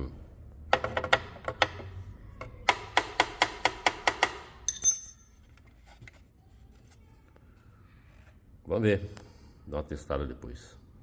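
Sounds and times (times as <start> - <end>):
bright clink: 4.7 - 5.3.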